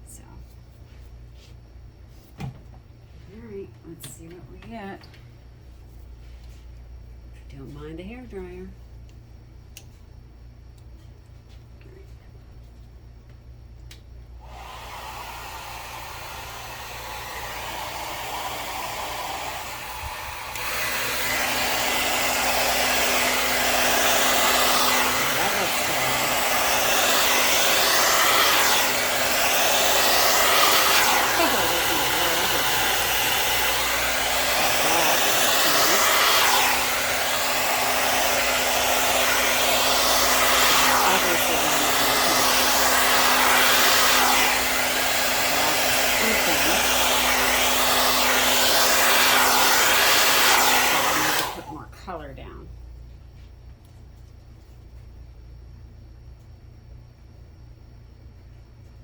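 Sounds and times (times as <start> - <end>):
hair dryer blowing: 14.4 - 51.8.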